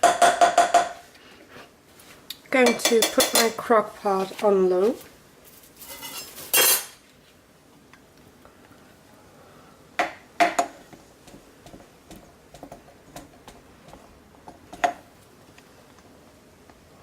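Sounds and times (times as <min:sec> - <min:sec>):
kitchen utensils and pots clinking: 0:02.6 - 0:04.3, 0:05.8 - 0:07.0.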